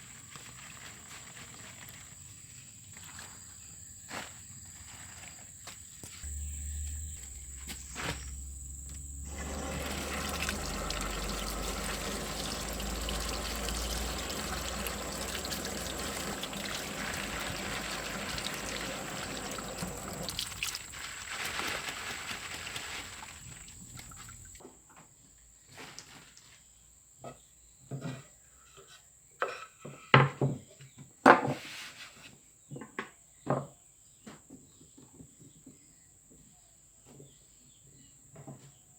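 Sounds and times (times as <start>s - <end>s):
water running steadily: 7.2s - 24.6s.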